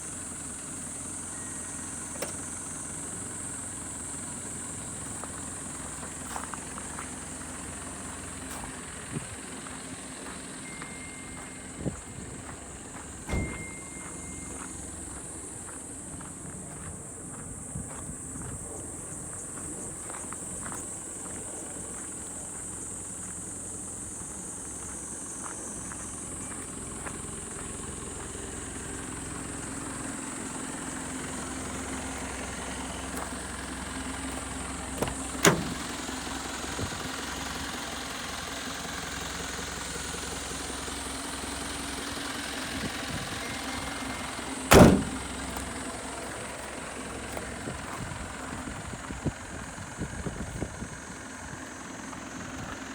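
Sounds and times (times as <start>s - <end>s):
diesel engine idling: 0.0s - 52.9s
sharp loud knocks: 44.7s - 45.2s.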